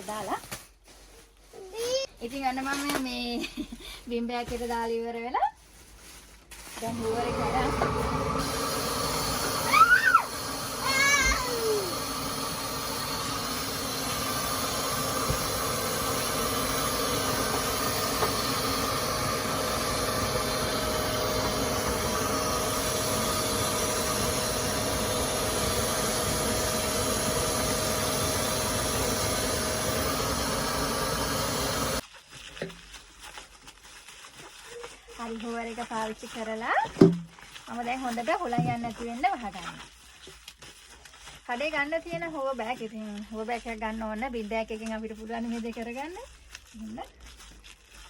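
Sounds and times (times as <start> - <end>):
vacuum cleaner running: 6.8 - 32.0.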